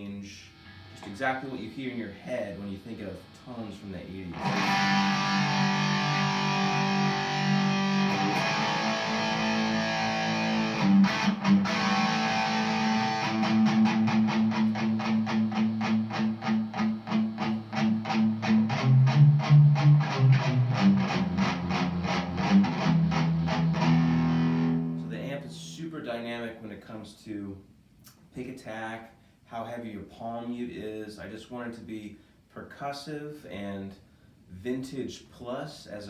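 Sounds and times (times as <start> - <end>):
overdriven electric guitar: 4.2 - 25.2.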